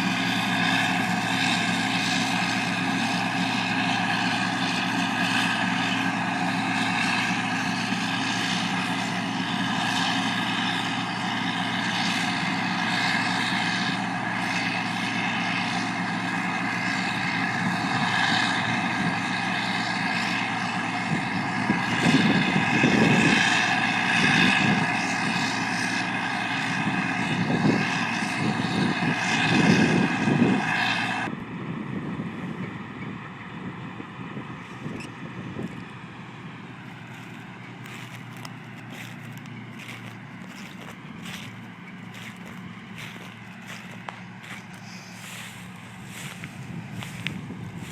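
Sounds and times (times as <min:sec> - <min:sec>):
machinery engine heavy drone: 0:00.0 - 0:47.9
wind buffeting microphone: 0:21.0 - 0:23.6, 0:31.3 - 0:36.0, 0:36.8 - 0:47.9.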